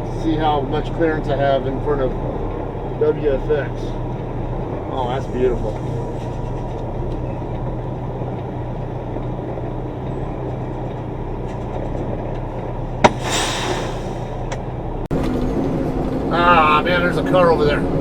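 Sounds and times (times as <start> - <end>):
diesel truck engine running: 0.0 - 18.0
short air hiss: 13.0 - 14.4.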